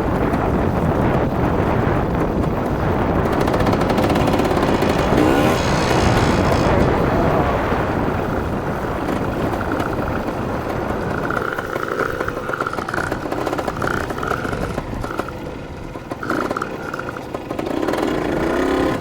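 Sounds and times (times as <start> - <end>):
steady rush of noise: 2.2 - 10.4
dirt bike engine revving: 2.6 - 8.6.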